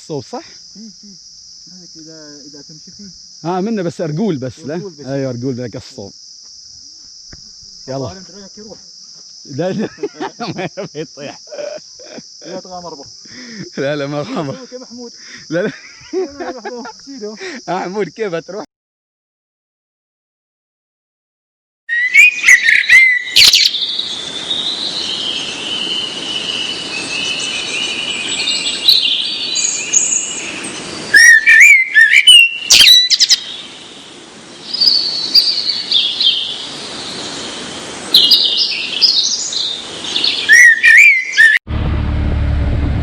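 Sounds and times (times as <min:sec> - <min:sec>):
steady background hiss: 0:00.0 - 0:18.6, 0:22.2 - 0:41.4
birds chirping and singing: 0:21.9 - 0:33.7, 0:38.2 - 0:41.6.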